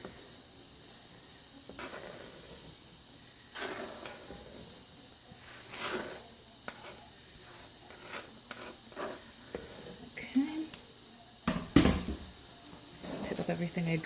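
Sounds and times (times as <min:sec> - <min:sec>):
food scraped into container: 0:01.8 - 0:02.6, 0:03.6 - 0:04.8, 0:05.4 - 0:10.0.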